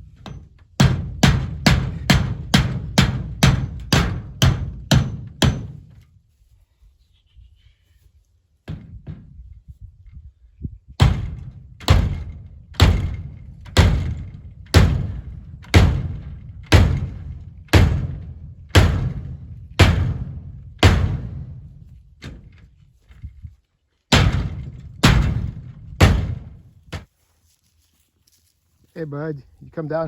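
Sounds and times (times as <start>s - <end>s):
hammer blows ringing: 0.8s - 5.8s, 11.0s - 21.6s.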